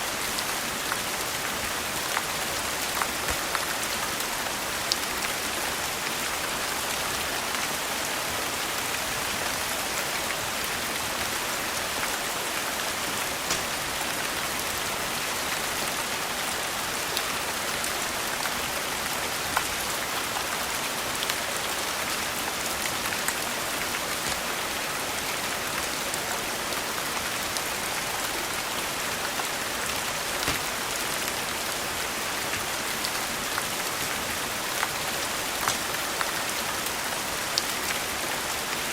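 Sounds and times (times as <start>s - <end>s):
rain hissing: 10.3s - 15.2s.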